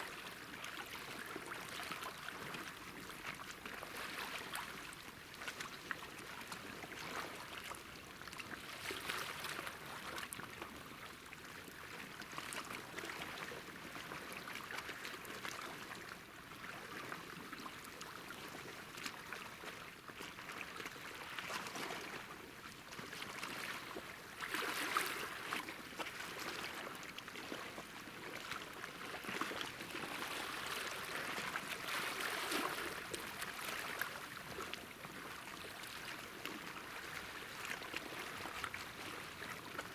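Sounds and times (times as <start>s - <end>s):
waves lapping on shore: 23.2s - 39.9s.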